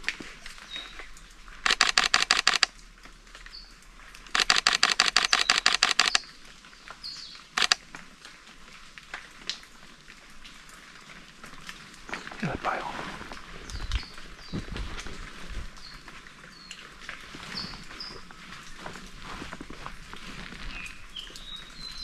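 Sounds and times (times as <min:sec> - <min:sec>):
camera shutter clicking: 0:01.7 - 0:02.7, 0:04.4 - 0:06.2, 0:07.6 - 0:07.8.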